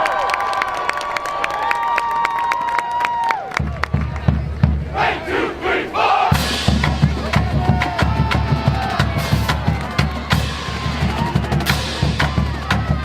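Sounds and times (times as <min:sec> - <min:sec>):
bass drums: 0:03.6 - 0:05.0, 0:06.3 - 0:13.0
crowd shouting: 0:04.9 - 0:13.0
cymbal crashes: 0:06.4 - 0:07.2.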